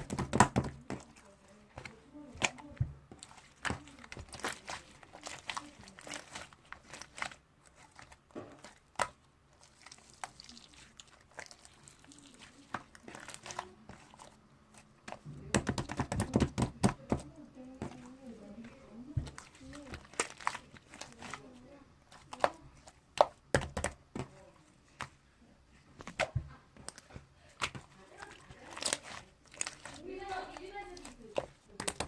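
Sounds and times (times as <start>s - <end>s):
slime sticky clicks and crackles: 30.9s - 32.0s.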